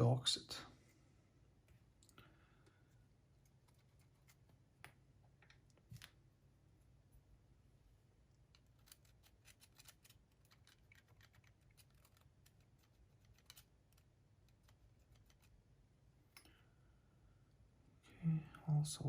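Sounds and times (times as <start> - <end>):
small parts clicking: 8.3 - 15.5.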